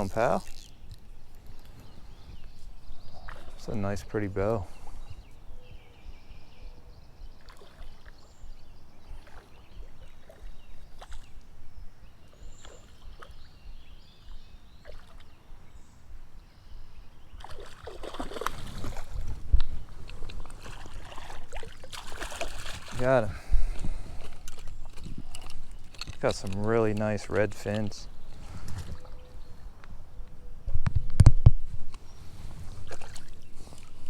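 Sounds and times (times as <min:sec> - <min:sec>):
creek water splashing: 0:03.0 - 0:04.7, 0:07.3 - 0:11.5, 0:12.3 - 0:15.4, 0:17.4 - 0:29.4, 0:32.5 - 0:34.0.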